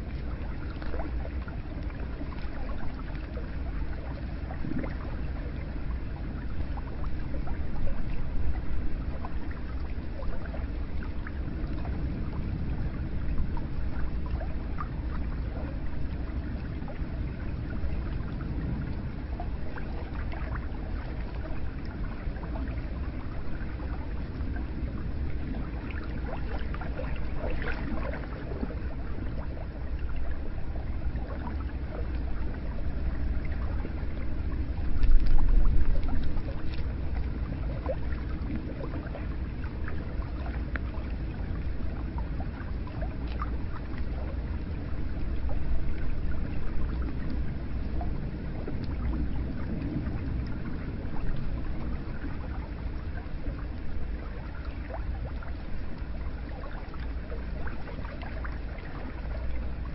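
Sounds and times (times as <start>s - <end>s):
water pouring and trickling: 0.0s - 59.9s
water splashes and drips: 0.0s - 59.9s.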